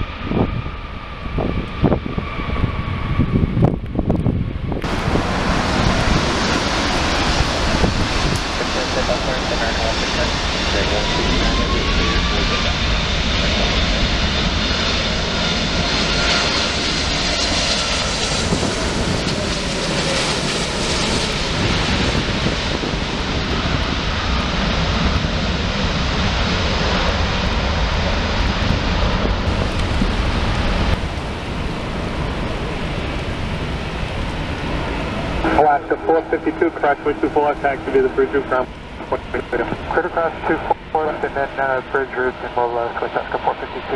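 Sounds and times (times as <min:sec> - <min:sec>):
jet airliner engines roaring: 0:00.0 - 0:43.9.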